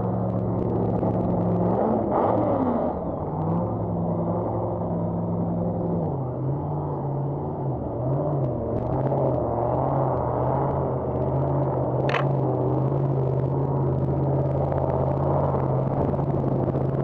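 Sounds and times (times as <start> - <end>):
car engines idling: 11.3 - 16.9.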